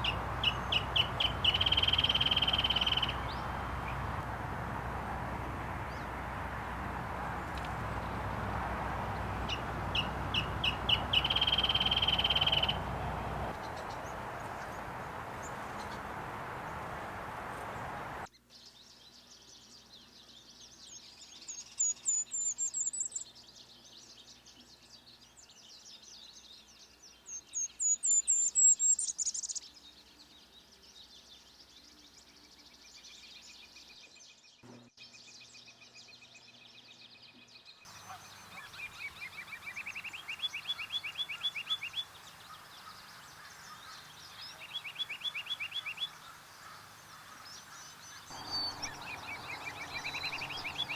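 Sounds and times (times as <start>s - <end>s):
chorus of bird calls: 0.0s - 18.3s, 37.9s - 50.9s
rapid rising bird phrases: 0.0s - 18.3s, 37.9s - 50.9s.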